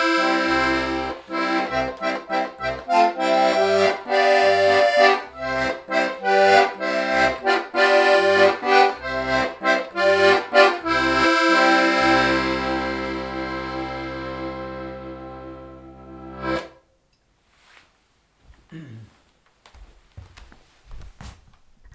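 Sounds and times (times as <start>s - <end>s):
accordion playing folk tune: 0.0s - 16.8s.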